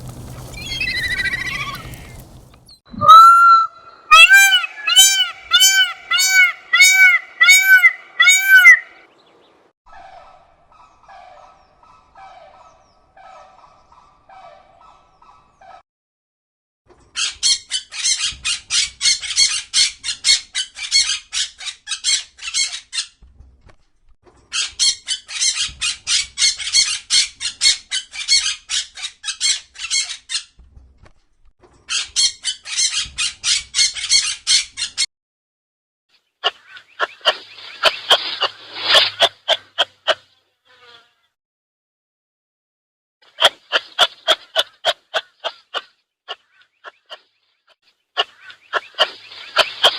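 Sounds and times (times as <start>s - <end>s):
rapid harsh squawks: 0.0s - 3.3s
bird calls: 0.0s - 9.6s, 36.4s - 39.6s, 48.1s - 49.9s.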